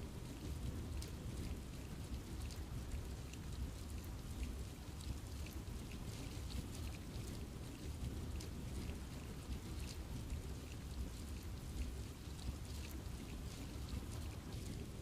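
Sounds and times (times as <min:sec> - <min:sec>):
low rumble of rainfall: 0:00.0 - 0:15.0
raindrops ticking on leaves: 0:00.0 - 0:15.0.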